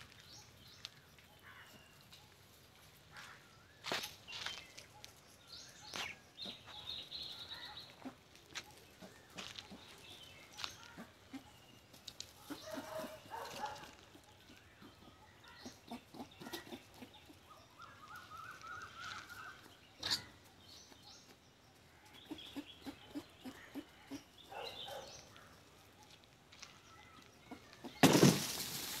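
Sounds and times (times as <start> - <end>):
birds calling: 0.0 - 29.0.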